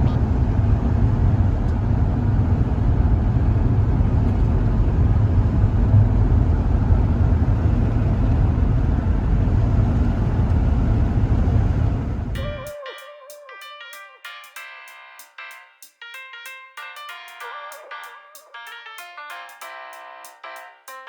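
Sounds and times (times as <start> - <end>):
van driving on highway: 0.0 - 12.4.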